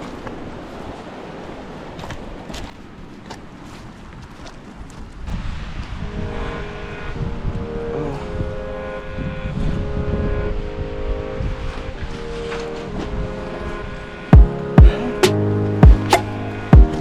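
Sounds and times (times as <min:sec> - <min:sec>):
drone shifting in pitch: 0:06.0 - 0:17.0.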